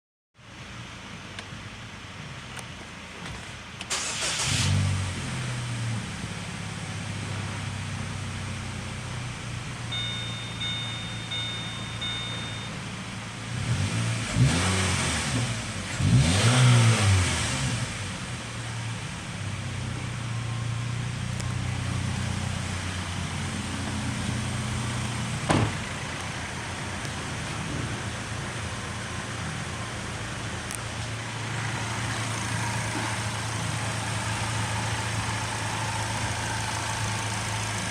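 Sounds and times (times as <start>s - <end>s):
car engine idling and revving: 0.4s - 37.9s
high beeping tone: 9.9s - 13.0s.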